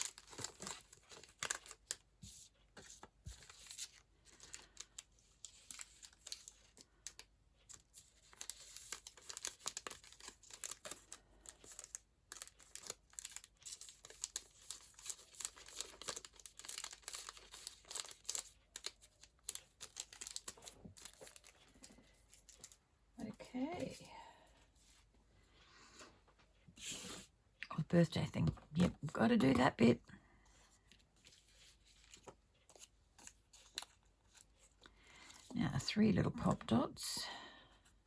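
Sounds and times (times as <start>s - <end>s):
packets rustling and crinkling: 0.0s - 22.8s.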